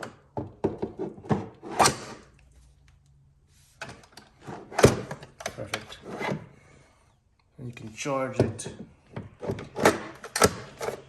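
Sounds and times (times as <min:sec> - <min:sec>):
plastic parts knocking and clicking: 0:00.0 - 0:01.9.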